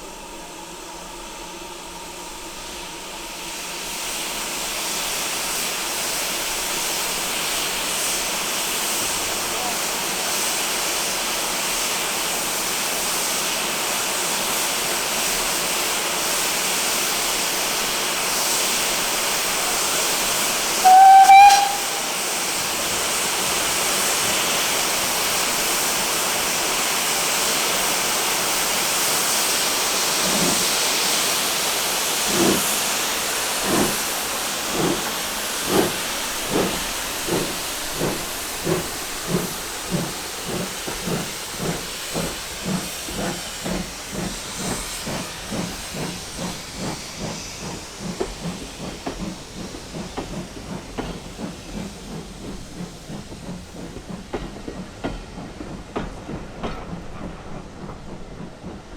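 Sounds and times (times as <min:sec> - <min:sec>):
hiss of escaping steam: 0:02.5 - 0:58.9
locomotive exhaust chuffs: 0:03.5 - 0:58.9
steam whistle blast: 0:20.8 - 0:22.6.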